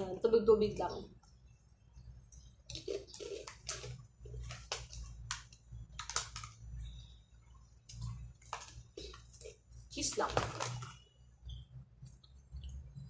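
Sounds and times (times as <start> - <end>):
snack chips crunching: 2.6 - 7.0, 7.8 - 9.7
plastic packet crackling: 2.7 - 7.2, 7.8 - 11.1.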